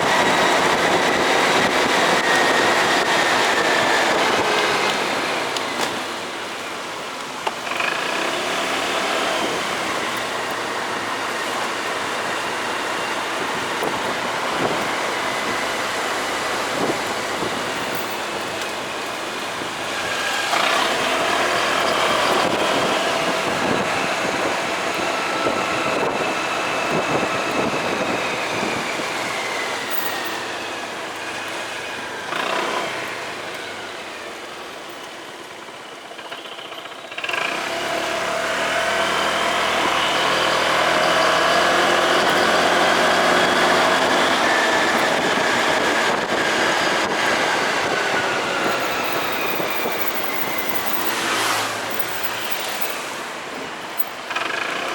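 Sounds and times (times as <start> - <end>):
motorcycle engine running: 34.6 - 51.2
wind rush: 44.5 - 54.0.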